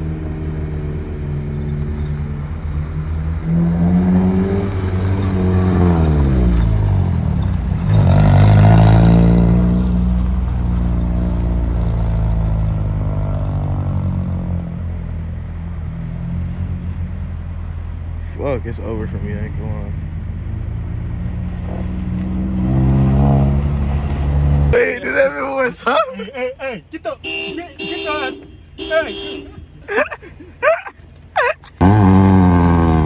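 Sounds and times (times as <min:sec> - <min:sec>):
car engine revving hard: 0:03.4 - 0:06.4, 0:31.8 - 0:33.0.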